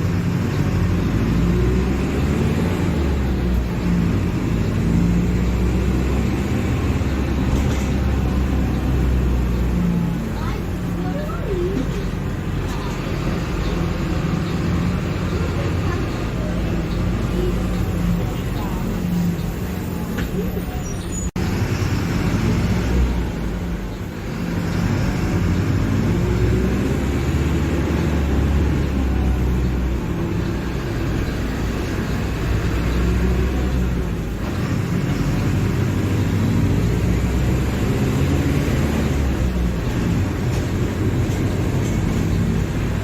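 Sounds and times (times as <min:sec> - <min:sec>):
diesel bus engine rumbling: 0:00.0 - 0:43.0.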